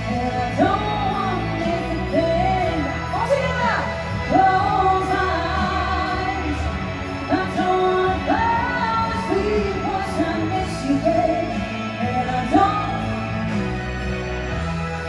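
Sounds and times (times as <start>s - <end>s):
person singing: 0.0s - 14.2s
backing music: 0.0s - 15.0s.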